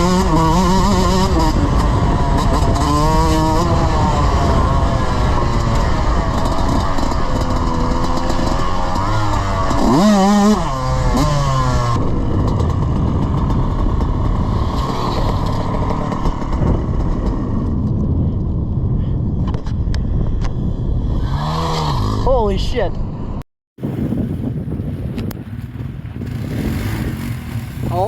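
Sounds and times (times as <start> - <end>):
small engine revving: 0.0 - 17.5, 21.1 - 22.3, 25.2 - 28.0.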